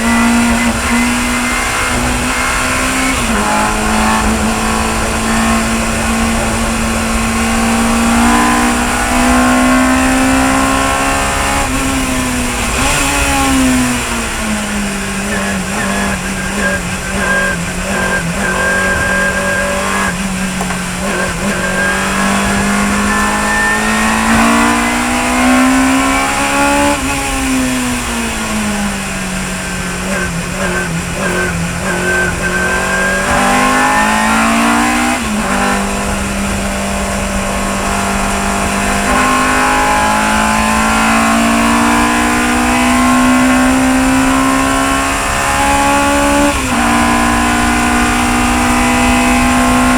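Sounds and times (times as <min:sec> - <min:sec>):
racing car engine: 0:00.0 - 0:49.9.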